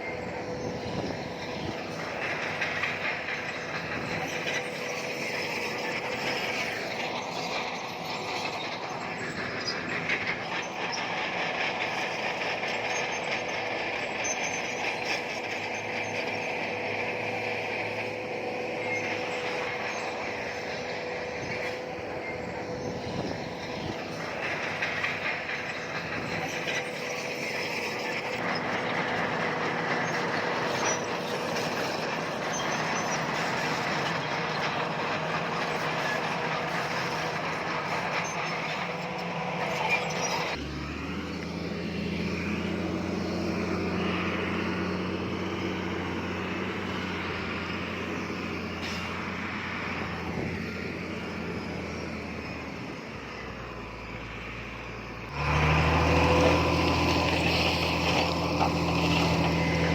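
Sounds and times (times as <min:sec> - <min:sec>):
bulldozer diesel engine: 0:00.0 - 0:59.9
steel tracks squealing and clanking: 0:00.0 - 0:59.9.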